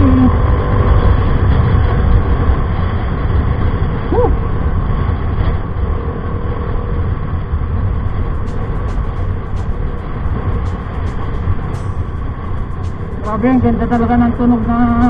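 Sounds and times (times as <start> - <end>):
wind rumble on microphone: 0.0 - 15.0
high rising and falling tone: 7.9 - 15.0
scooter exhaust note: 8.0 - 15.0.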